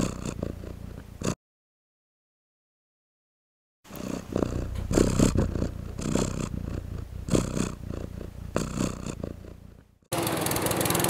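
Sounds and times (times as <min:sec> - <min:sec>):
cat purring: 0:00.0 - 0:01.4, 0:03.9 - 0:10.0.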